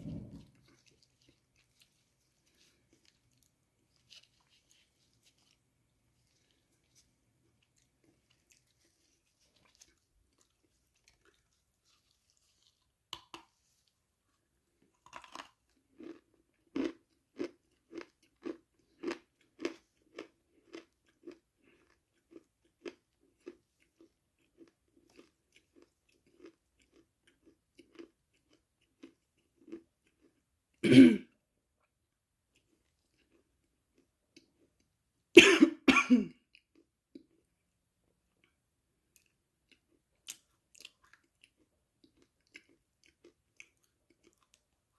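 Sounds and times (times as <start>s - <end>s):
person chewing: 0.0s - 30.4s, 32.5s - 34.9s, 38.3s - 44.9s
biting into crunchy food: 14.9s - 30.4s.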